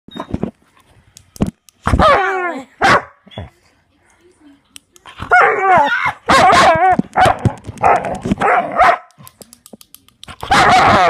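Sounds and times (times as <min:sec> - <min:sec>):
dog barking and yowling: 0:02.0 - 0:03.2, 0:05.3 - 0:09.1, 0:10.5 - 0:11.0.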